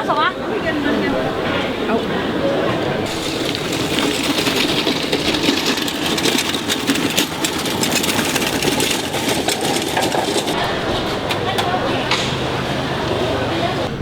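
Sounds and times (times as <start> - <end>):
engine running with clatter: 3.0 - 14.0.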